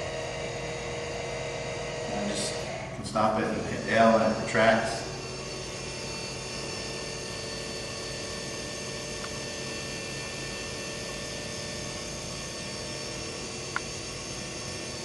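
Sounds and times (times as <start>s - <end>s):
actuator motor whining hum: 0.0s - 15.0s.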